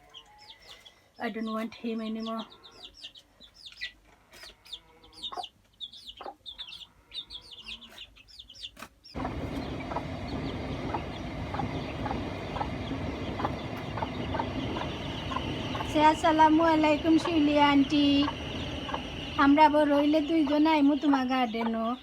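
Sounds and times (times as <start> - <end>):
chicks peeping: 0.0 - 22.0
noisy background: 9.2 - 22.0.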